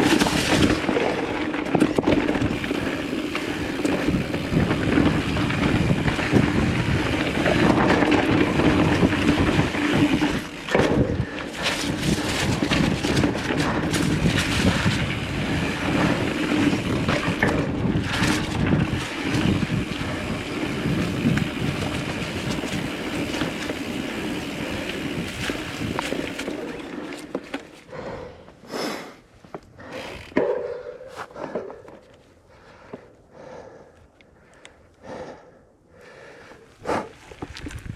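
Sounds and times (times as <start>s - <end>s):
bike frame and chain rattling: 0.0s - 28.0s, 29.8s - 32.2s
bike tyre rolling on dirt: 0.0s - 28.3s, 29.4s - 33.9s, 35.0s - 37.9s
wind on microphone: 3.7s - 23.5s.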